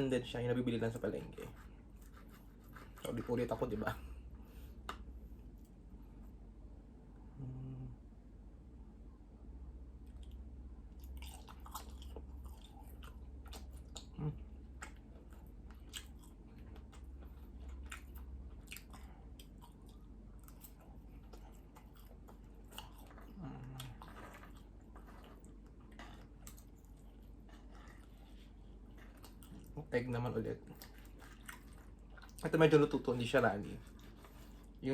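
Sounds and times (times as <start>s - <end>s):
wet chewing and mouth clicks: 10.0s - 29.8s, 30.6s - 32.9s.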